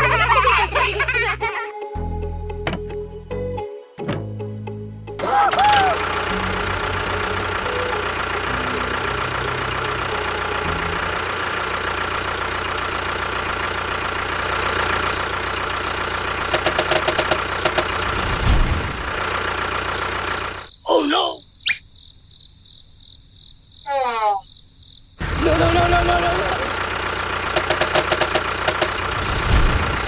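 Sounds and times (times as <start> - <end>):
engine running steadily: 5.2 - 20.7, 25.2 - 30.0
sharp clicks: 16.5 - 18.3, 27.5 - 29.5.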